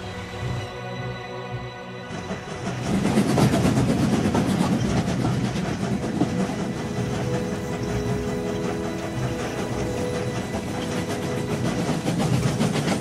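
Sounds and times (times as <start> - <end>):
train wheels on rails: 1.9 - 13.0
faint steady tones: 4.8 - 13.0.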